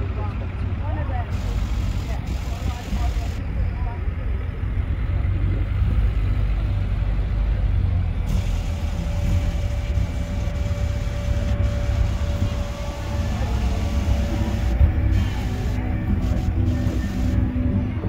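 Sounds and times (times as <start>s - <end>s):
car engines rumbling past: 0.0s - 18.0s
steady tone: 1.3s - 4.2s, 8.3s - 18.0s.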